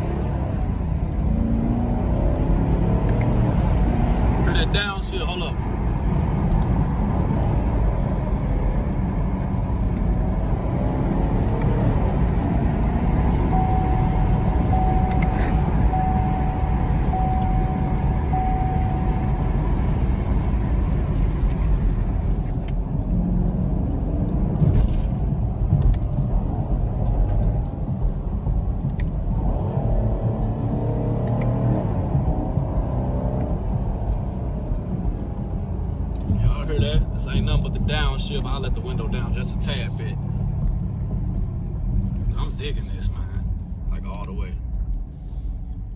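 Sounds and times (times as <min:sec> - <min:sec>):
car engine drone from inside: 0:00.0 - 0:45.9
electronic tone beeping: 0:13.4 - 0:20.1.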